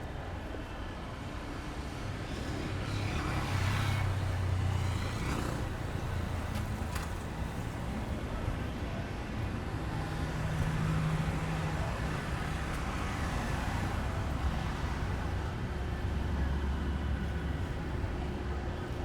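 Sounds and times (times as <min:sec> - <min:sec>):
engine passing by: 0:02.3 - 0:08.0.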